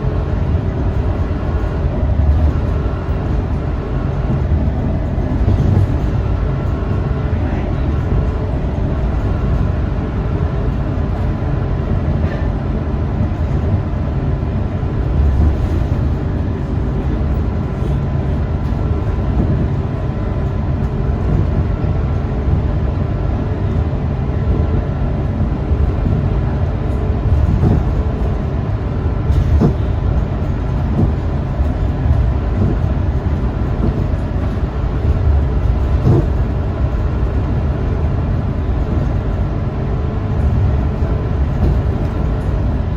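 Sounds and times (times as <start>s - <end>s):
bus engine and road rumble: 0.0s - 42.9s.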